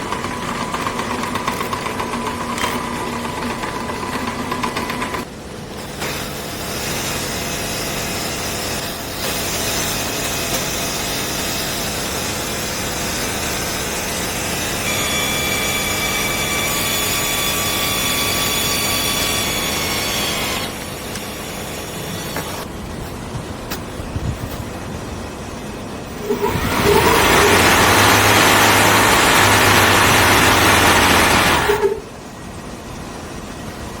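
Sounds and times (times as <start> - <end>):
steady background noise: 0.0 - 34.0
lawn mower cutting grass: 26.1 - 32.0.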